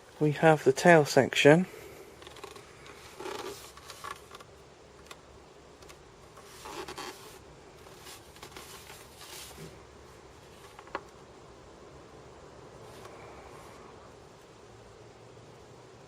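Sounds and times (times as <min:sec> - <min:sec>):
plastic parts rubbing and scraping: 0:02.1 - 0:05.2, 0:05.8 - 0:09.8.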